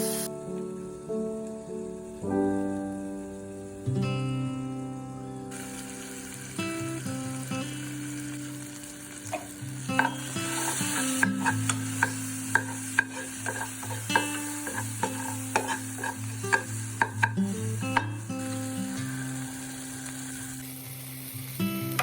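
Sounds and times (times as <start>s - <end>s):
food sizzling in a pan: 0.0s - 22.0s
spatula scraping a pan: 9.3s - 18.2s.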